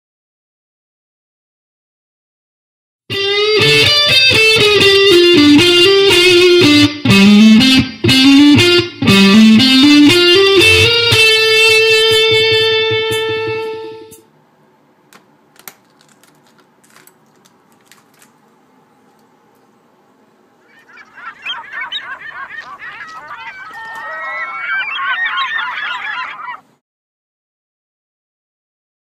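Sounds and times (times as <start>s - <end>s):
electric guitar riff: 3.1s - 14.2s.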